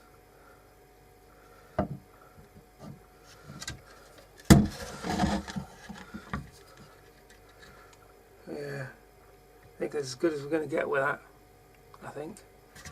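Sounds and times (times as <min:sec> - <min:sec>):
wood knocking against wood: 0:01.8 - 0:02.0
wood rubbing and scraping: 0:04.6 - 0:06.9.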